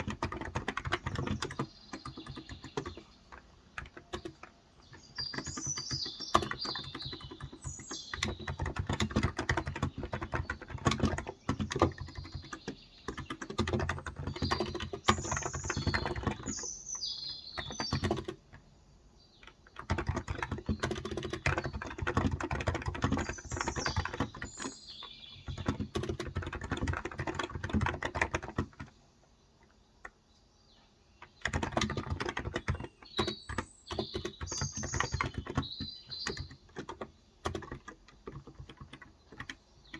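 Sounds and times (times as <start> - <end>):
keyboard typing: 0.0 - 18.7, 19.4 - 29.0, 31.2 - 39.9
birds chirping: 0.0 - 39.9.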